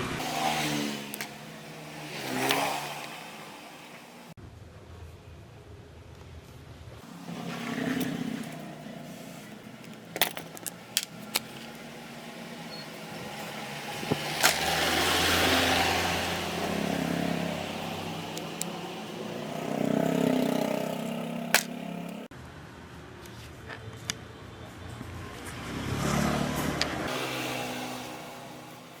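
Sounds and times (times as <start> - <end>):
power tool motor running: 7.1 - 22.2.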